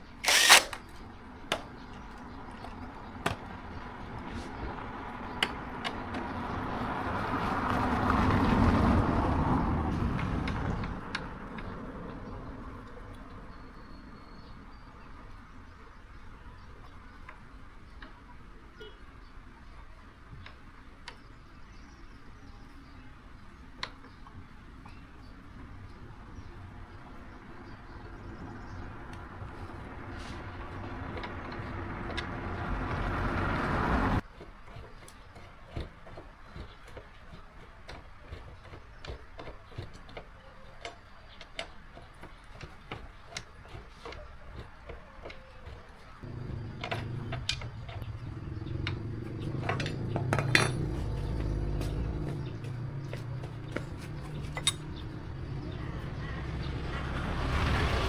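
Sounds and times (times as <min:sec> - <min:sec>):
steady machine noise: 0:00.2 - 0:00.8
light metal clinks and taps: 0:46.4 - 0:55.2.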